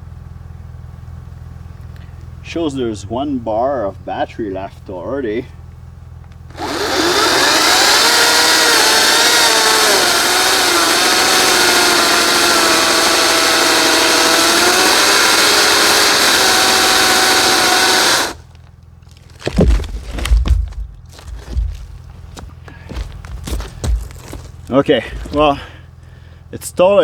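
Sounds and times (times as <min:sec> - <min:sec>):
chainsaw cutting log: 0:06.5 - 0:25.8
low thumps: 0:19.3 - 0:25.8.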